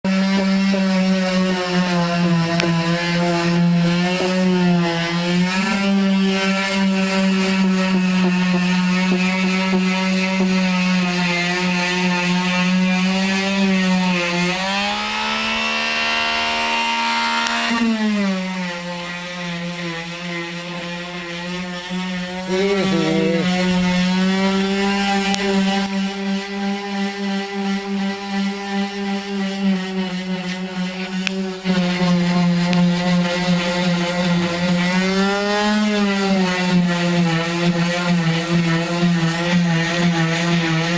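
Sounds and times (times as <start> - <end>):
electric power sander whining: 0.0 - 40.9.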